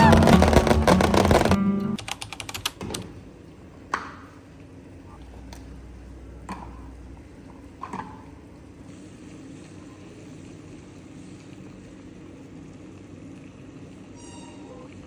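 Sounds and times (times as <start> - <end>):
faint background hum: 1.8 - 15.0.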